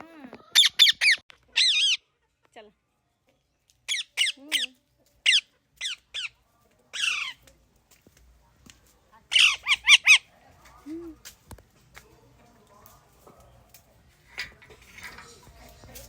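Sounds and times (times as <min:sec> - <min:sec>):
parrot squawking: 0:00.5 - 0:02.0, 0:03.9 - 0:06.3, 0:07.0 - 0:07.4, 0:09.3 - 0:10.3.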